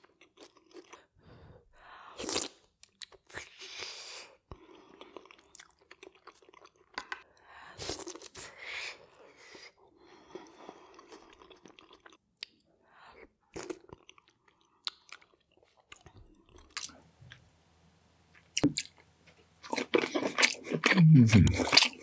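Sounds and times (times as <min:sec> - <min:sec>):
soft chewing and mouth clicks: 0:02.2 - 0:08.4, 0:09.0 - 0:17.6, 0:18.3 - 0:22.0
loud crunching and biting: 0:19.6 - 0:22.0.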